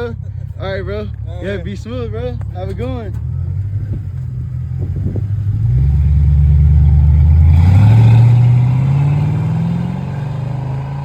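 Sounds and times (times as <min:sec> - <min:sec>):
car accelerating away: 0:03.2 - 0:11.0.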